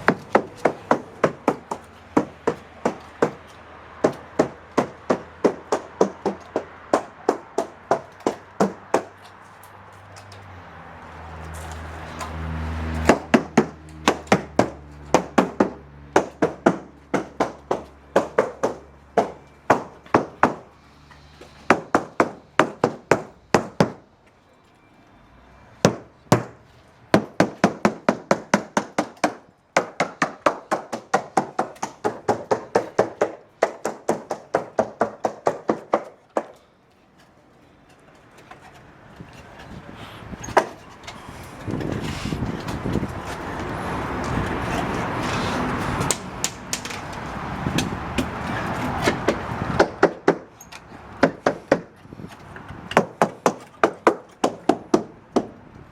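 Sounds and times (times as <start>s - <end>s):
tool striking boat hull: 0.0s - 9.3s, 13.0s - 20.7s, 21.4s - 24.0s, 25.8s - 36.7s, 40.4s - 43.1s, 47.7s - 55.6s.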